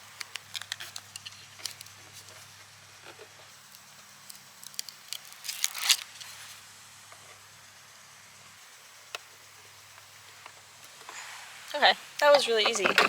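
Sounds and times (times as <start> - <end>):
crackling rustle: 0.0 - 7.5.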